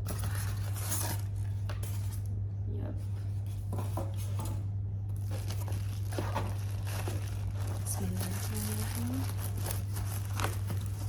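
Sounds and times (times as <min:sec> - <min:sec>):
steady low hum: 0:00.0 - 0:11.0
packaging crinkling and rustling: 0:05.1 - 0:11.0.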